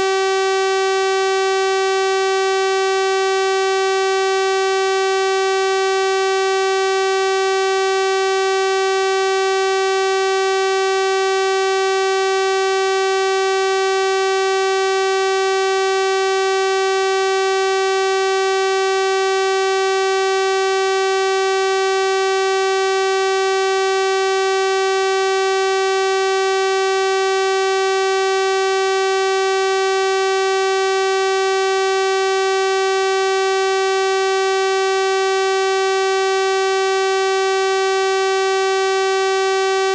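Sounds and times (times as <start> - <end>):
buzzy electronic test tone: 0.0 - 2.3.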